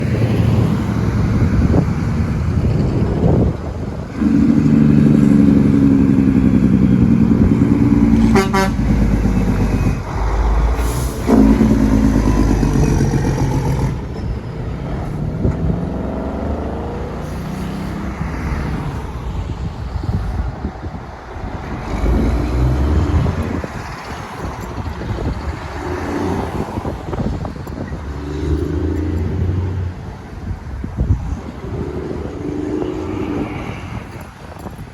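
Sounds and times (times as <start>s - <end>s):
truck engine running: 0.0s - 18.0s
truck engine brake barking: 8.3s - 14.1s.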